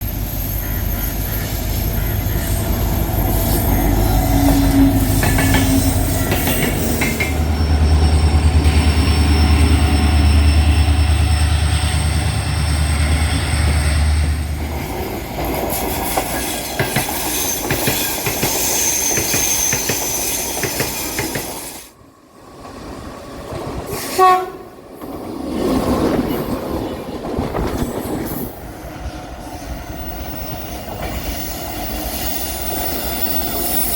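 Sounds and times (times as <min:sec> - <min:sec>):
train rumble: 0:00.0 - 0:33.9
wheel squeal: 0:00.1 - 0:14.2, 0:17.1 - 0:21.6, 0:29.4 - 0:33.9
train horn blast: 0:02.4 - 0:06.7, 0:23.9 - 0:24.8.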